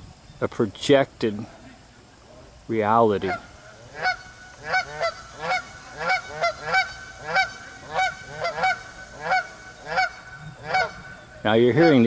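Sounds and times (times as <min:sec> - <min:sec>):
geese honking: 0:03.0 - 0:12.0.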